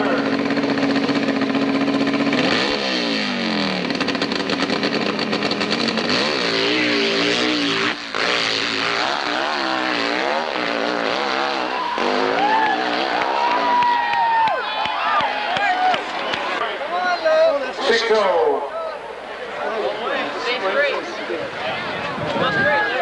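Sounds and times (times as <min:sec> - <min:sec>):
motorcycle engine revving: 0:00.0 - 0:14.1.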